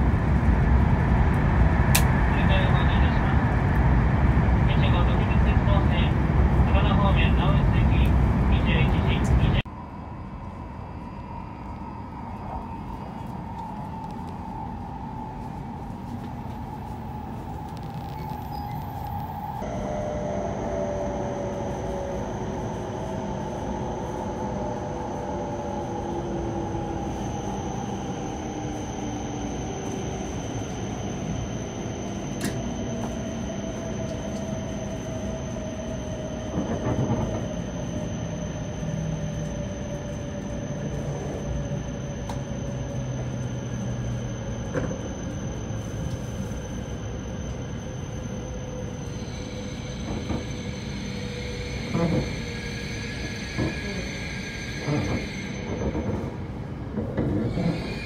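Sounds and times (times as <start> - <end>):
train running noise: 0.0 - 58.0
train traction motors whining: 28.2 - 58.0.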